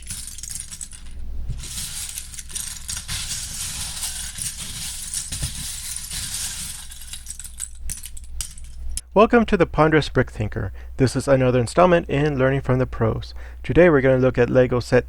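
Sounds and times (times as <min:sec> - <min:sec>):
plastic pieces rattling: 0:00.0 - 0:09.0.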